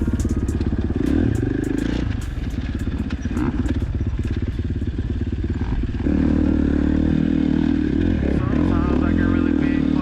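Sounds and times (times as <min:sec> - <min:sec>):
sharp clicks and clatter: 0:00.0 - 0:04.9
dirt bike engine pulsing: 0:00.0 - 0:10.0.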